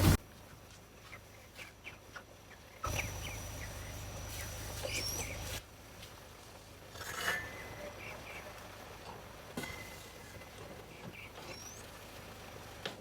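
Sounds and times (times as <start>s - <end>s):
chickens peeping: 0.9s - 5.6s, 7.6s - 9.0s, 9.9s - 12.3s.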